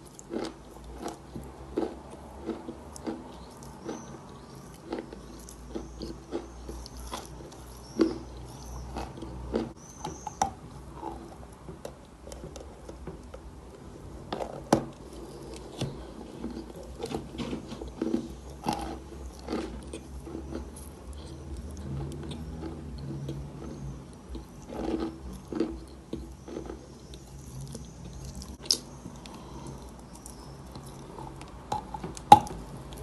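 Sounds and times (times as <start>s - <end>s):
chewing and crunching chalk: 0.0s - 33.0s.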